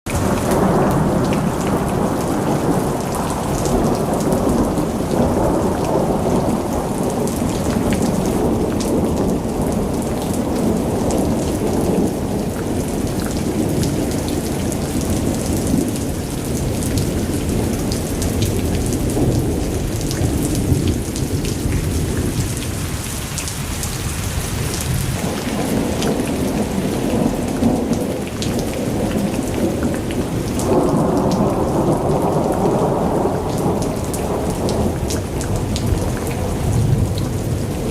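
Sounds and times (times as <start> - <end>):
heavy rain: 0.0 - 37.9
low rolling thunder rumble: 0.2 - 23.1, 23.7 - 37.9.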